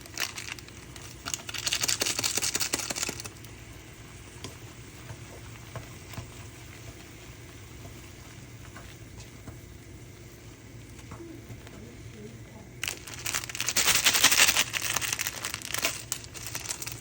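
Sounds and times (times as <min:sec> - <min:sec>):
snack packaging crinkling: 0:00.0 - 0:03.4, 0:12.8 - 0:17.0.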